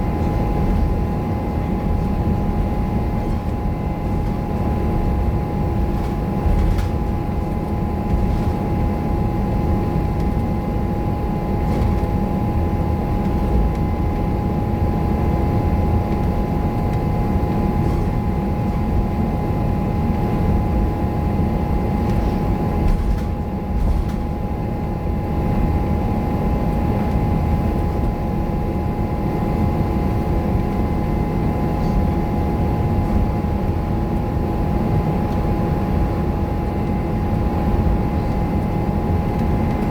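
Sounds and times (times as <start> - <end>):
bus diesel engine rumble: 0.0 - 10.5.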